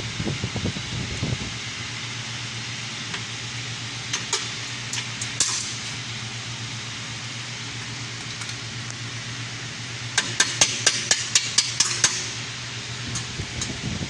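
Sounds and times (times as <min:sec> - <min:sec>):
steady low hum: 0:00.0 - 0:14.0
hammer tapping on metal: 0:10.2 - 0:12.3.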